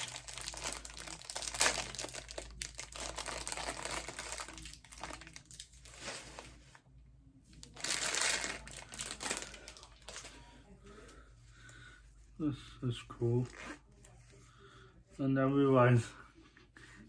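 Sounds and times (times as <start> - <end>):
packaging crinkling and tearing: 0.0 - 6.4, 7.6 - 10.4.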